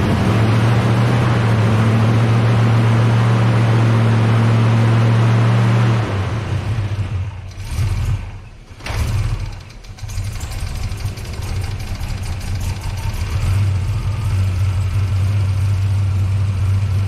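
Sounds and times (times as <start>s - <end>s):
car engine idling: 6.4s - 17.0s.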